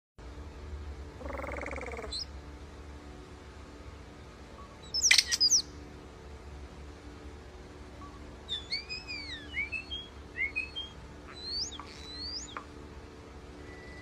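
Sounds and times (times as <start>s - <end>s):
steady low hum: 0.2s - 14.0s
bird clicks and whistles: 4.9s - 5.6s, 8.5s - 12.7s.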